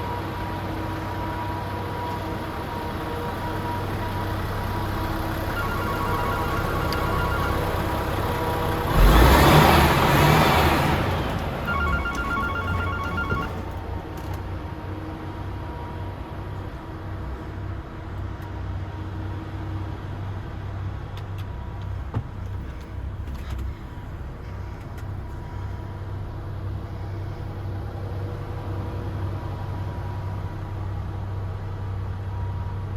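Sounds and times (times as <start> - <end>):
truck diesel engine idling: 0.0 - 16.5
rapid electronic beeping: 5.6 - 8.2, 11.7 - 13.6.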